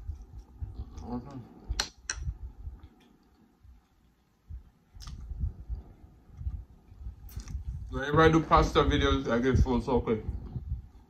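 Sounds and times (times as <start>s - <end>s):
man chewing food: 1.6s - 7.7s
wet mouth clicks and smacks: 4.9s - 5.4s.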